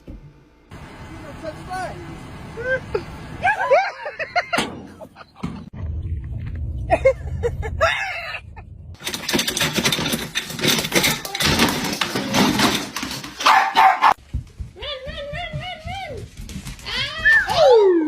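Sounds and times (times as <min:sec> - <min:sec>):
noisy scuffle: 0:09.5 - 0:17.7
dog barking: 0:13.4 - 0:14.2.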